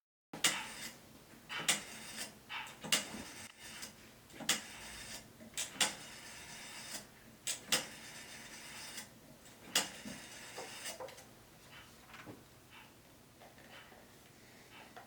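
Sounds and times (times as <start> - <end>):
faint room noise: 0.4 - 15.0
sharp clicks and knocks: 9.5 - 14.0.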